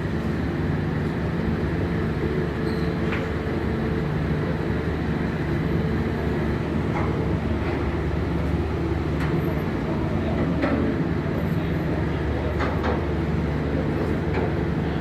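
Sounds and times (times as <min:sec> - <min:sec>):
ship engines droning: 0:00.0 - 0:15.0.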